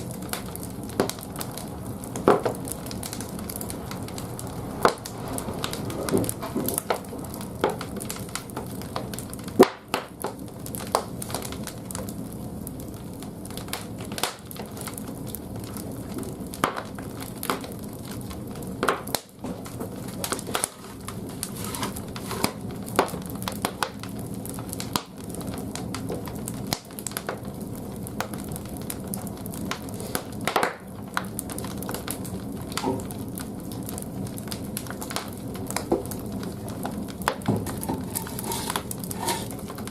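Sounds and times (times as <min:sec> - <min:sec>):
logs cracking and popping: 0:00.0 - 0:39.9
low rush of fire: 0:00.0 - 0:39.9.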